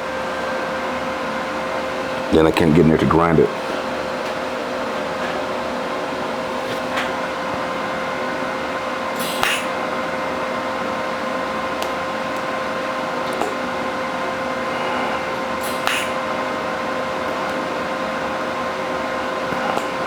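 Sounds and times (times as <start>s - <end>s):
workshop machine hum: 0.0s - 20.0s
hiss: 9.2s - 9.8s, 14.8s - 16.3s.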